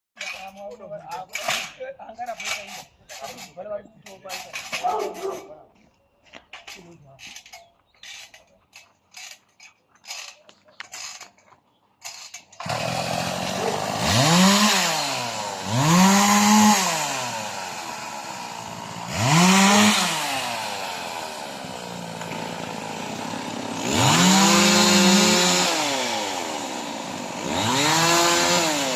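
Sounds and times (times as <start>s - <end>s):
chainsaw revving: 12.6s - 28.9s.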